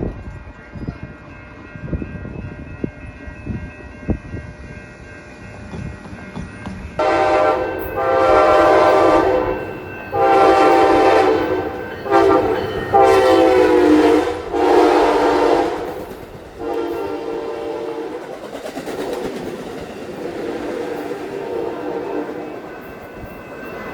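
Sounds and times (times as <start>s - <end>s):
train rumble: 0.0s - 23.9s
locomotive air horn blasts: 7.0s - 18.3s.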